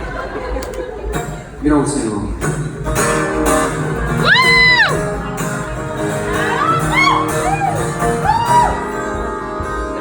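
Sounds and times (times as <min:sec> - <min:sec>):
live band guitar chords: 0:00.0 - 0:10.0
crowd whooping and cheering: 0:03.9 - 0:09.1.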